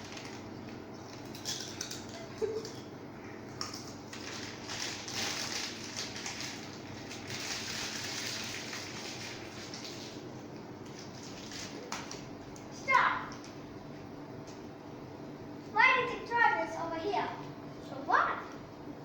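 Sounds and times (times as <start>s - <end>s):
plastic chips packet rustling: 0.0s - 0.5s, 3.7s - 10.3s, 10.9s - 12.2s.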